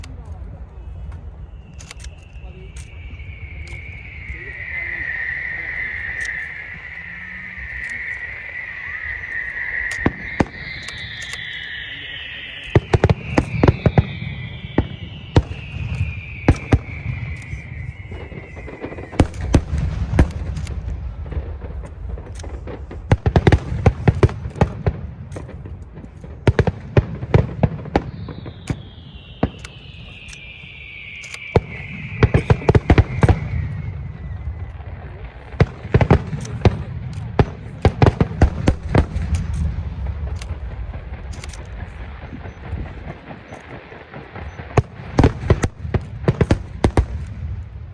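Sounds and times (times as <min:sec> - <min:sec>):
low rumble: 0:00.0 - 0:45.1
firework whistles: 0:00.0 - 0:47.9
firework shells cracking: 0:01.5 - 0:47.8.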